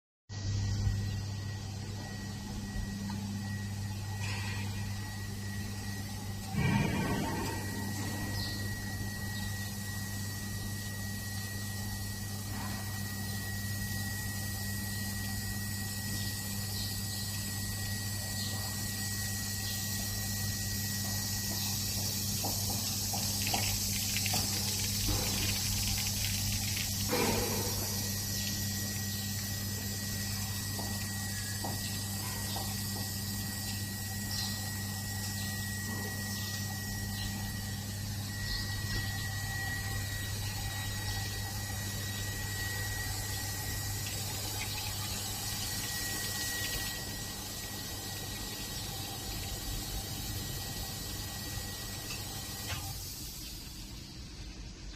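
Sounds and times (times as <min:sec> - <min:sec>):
pump hum: 0:00.3 - 0:54.9
thin steady whine: 0:00.3 - 0:54.9
water spray hissing: 0:22.4 - 0:29.2.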